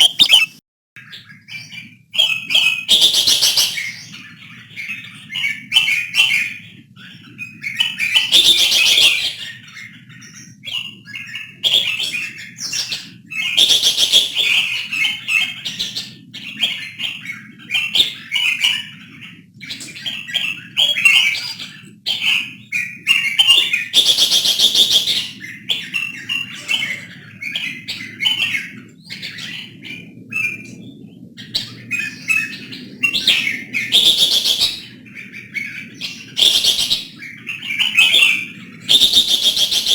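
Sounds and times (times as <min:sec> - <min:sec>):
bulbuls chirping: 0:00.0 - 0:00.6, 0:31.7 - 0:39.9
harsh bird calls: 0:00.0 - 0:39.9.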